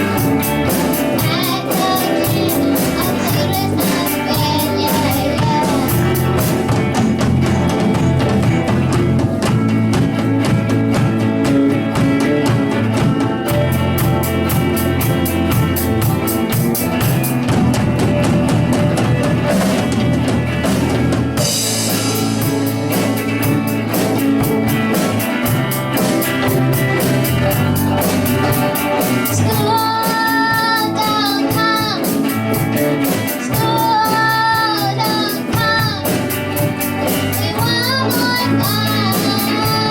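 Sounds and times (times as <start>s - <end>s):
rock band playing live: 0.0s - 39.9s
person singing: 1.1s - 8.9s, 29.2s - 32.3s, 33.4s - 36.2s, 37.2s - 39.9s.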